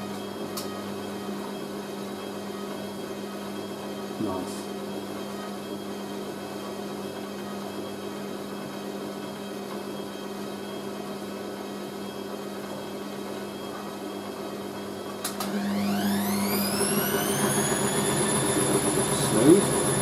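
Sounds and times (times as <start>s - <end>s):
motor whine of spin: 15.0s - 20.0s.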